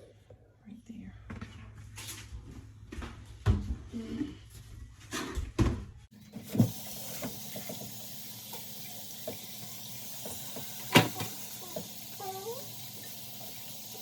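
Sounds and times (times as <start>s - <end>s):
tap water running into sink: 6.1s - 14.0s.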